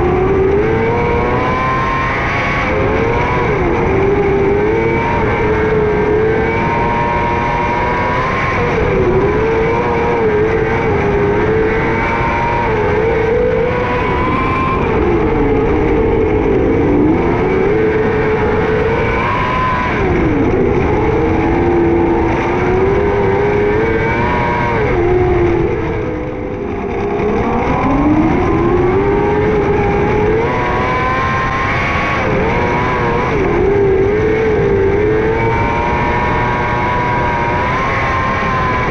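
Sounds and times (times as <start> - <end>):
racing car engine: 0.0 - 38.9.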